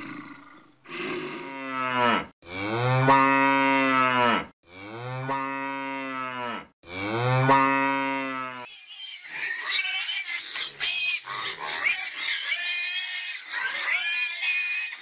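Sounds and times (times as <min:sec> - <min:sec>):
cow mooing: 0:01.3 - 0:08.7.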